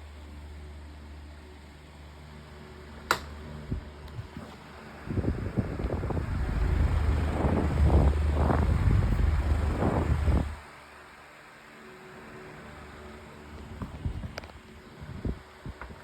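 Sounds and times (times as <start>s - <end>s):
fan airflow buffeting microphone: 2.4s - 10.8s, 12.3s - 16.0s
fan switch click: 3.0s - 3.4s.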